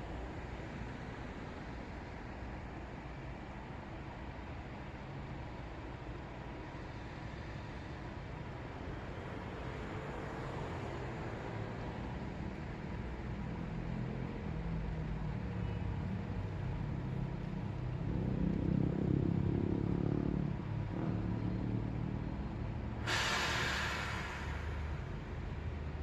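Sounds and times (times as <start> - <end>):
passing cars rumble: 6.1 - 26.0
loud car engine passing: 18.0 - 26.0
sudden hiss: 23.0 - 25.7.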